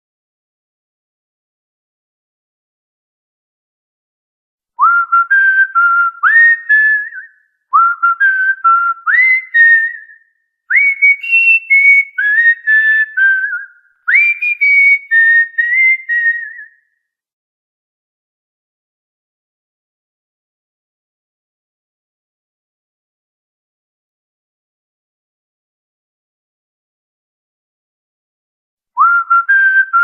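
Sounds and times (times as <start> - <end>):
cockatiel whistling a tune: 10.7 - 16.7, 29.0 - 30.0.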